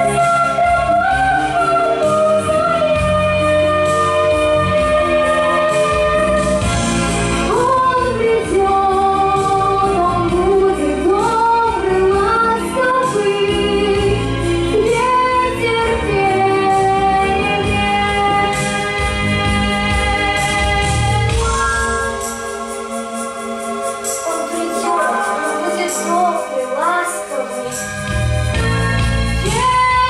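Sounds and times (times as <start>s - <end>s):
pop backing track: 0.0s - 30.0s
girl singing: 7.5s - 18.5s, 24.3s - 27.7s, 29.4s - 30.0s.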